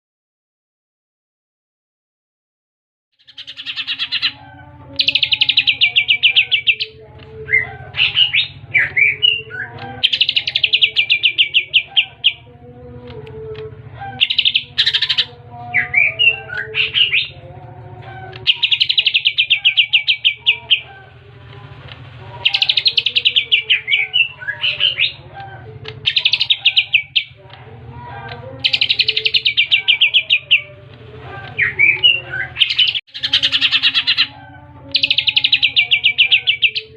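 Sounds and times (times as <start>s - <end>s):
bird singing rattling trills: 3.2s - 12.6s, 14.1s - 21.0s, 22.3s - 27.4s, 28.2s - 30.8s, 31.6s - 36.9s
steady low hum: 3.3s - 36.9s.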